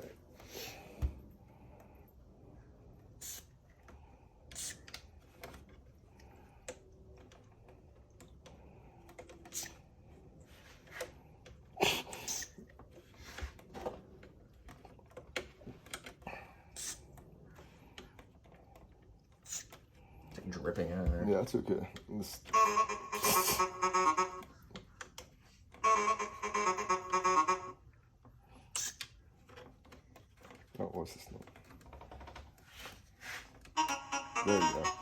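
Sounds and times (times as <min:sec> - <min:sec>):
plastic parts clicking and tapping: 0:03.2 - 0:09.8, 0:10.8 - 0:22.6, 0:24.4 - 0:25.8, 0:28.2 - 0:34.0.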